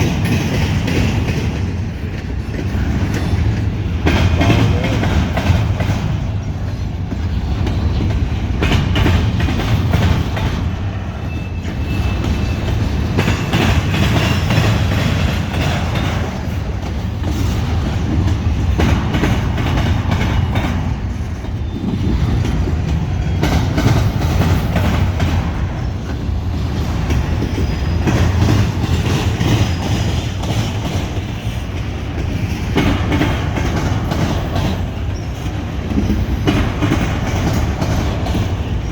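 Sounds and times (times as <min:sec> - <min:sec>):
train low rumble: 0:00.0 - 0:38.9
train wheels clacking on rail joints: 0:00.0 - 0:38.9
faint wheel squeal: 0:11.1 - 0:12.8.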